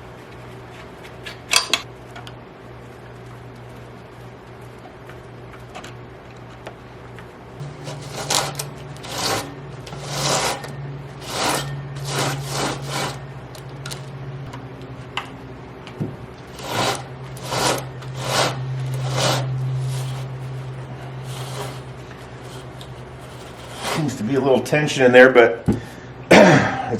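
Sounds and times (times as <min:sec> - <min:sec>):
chainsaw chain rasping drags: 0:07.7 - 0:14.1, 0:16.4 - 0:24.3.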